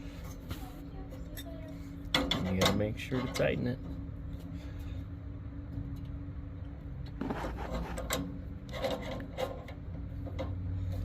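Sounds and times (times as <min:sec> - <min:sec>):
steady low hum: 0:00.0 - 0:11.0
wrench scraping and clicking on metal: 0:07.2 - 0:11.0.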